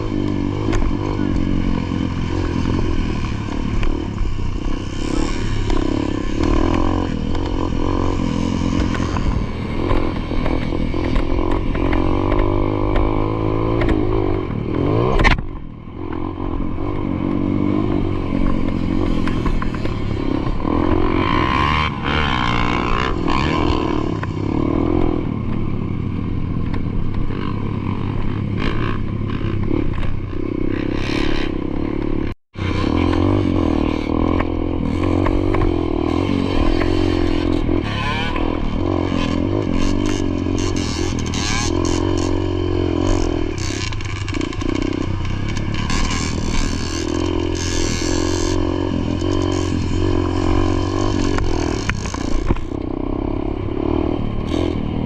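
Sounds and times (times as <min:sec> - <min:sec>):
dirt bike engine revving: 0:00.0 - 0:55.0
bike rattling: 0:17.6 - 0:52.8.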